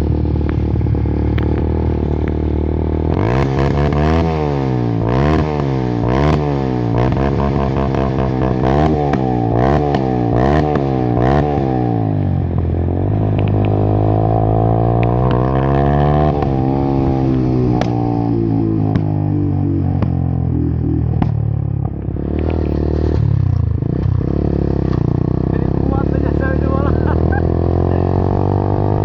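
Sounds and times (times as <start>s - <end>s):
engine revving: 0.0s - 29.0s
exhaust pops: 0.3s - 4.0s, 12.5s - 13.9s, 15.0s - 15.7s, 16.3s - 24.2s.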